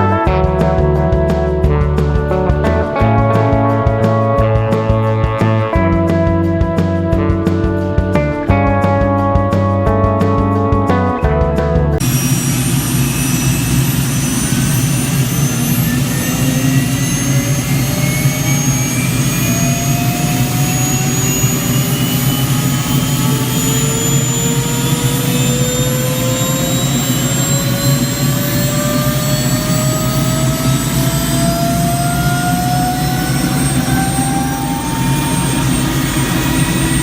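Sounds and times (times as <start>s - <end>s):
aircraft turbine engine spooling up: 12.0s - 37.0s.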